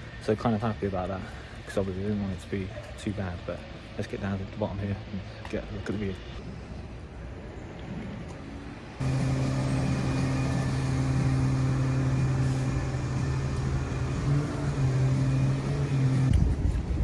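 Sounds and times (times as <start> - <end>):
vehicle engine humming: 9.0 - 17.0.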